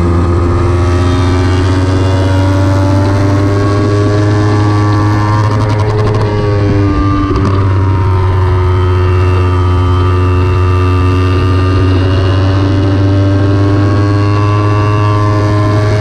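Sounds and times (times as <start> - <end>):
motorcycle engine running hard: 0.0 - 16.0.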